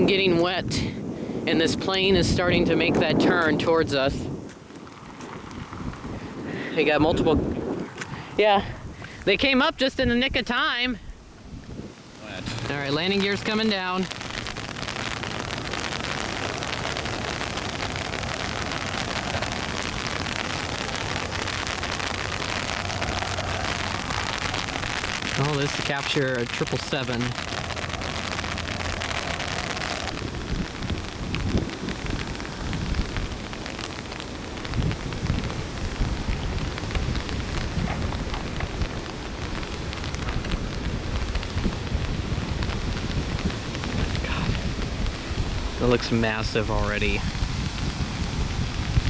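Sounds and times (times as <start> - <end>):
rain falling: 0.0 - 49.0
low rumble: 12.3 - 33.4.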